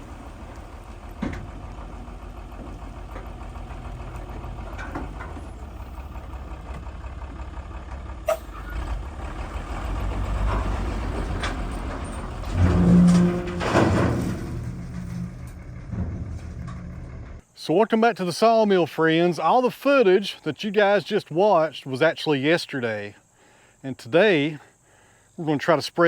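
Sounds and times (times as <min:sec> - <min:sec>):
heavy diesel engine running: 0:00.0 - 0:17.4.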